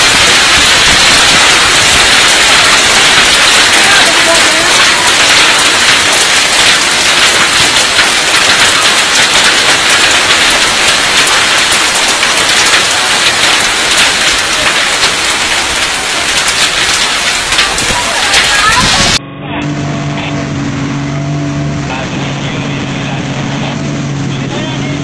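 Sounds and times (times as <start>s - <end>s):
hail ticking: 0.0s - 19.2s
heavy rain hiss: 0.0s - 19.2s.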